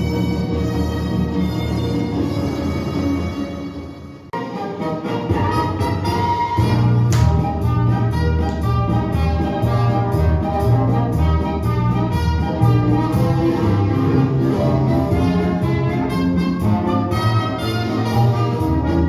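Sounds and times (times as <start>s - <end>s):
orchestral music with brass: 0.0s - 19.0s.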